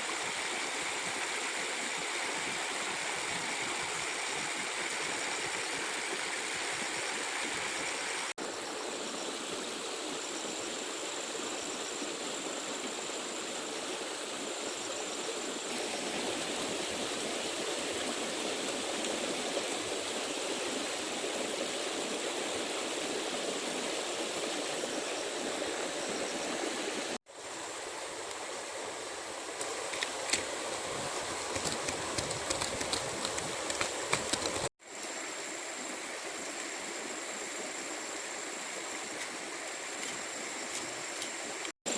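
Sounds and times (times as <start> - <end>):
stream rushing: 0.0 - 41.9
sharp clicks: 31.5 - 34.7.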